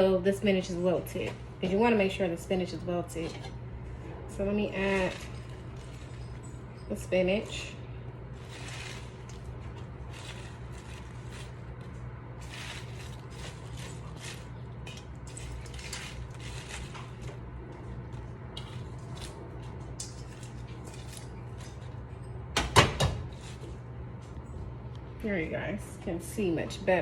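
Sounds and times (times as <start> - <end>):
steady low hum: 0.0 - 27.0
spinach rustling in a pan: 4.5 - 17.3.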